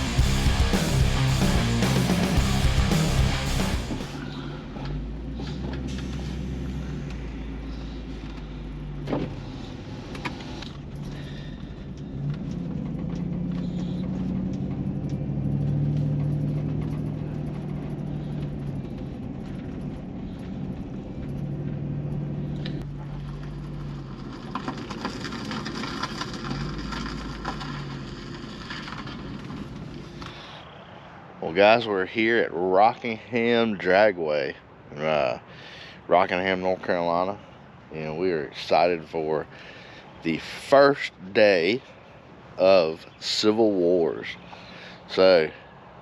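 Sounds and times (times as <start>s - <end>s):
vehicle engine humming: 0.0s - 32.5s.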